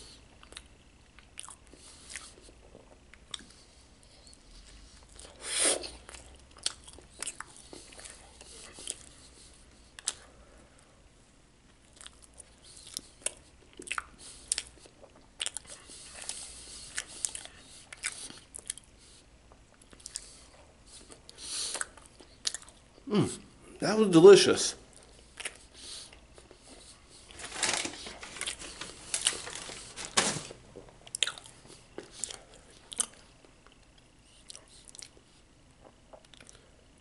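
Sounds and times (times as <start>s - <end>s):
person chewing and lip-smacking: 0.3s - 9.2s, 9.9s - 10.3s, 11.7s - 23.0s, 24.9s - 27.0s, 31.0s - 36.7s.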